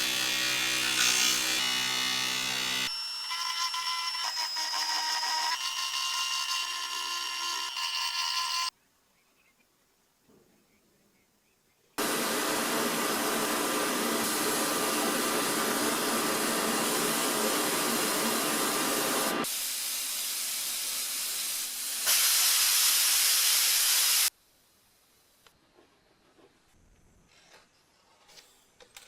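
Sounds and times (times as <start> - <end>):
pressurised spray hissing: 13.4 - 24.3.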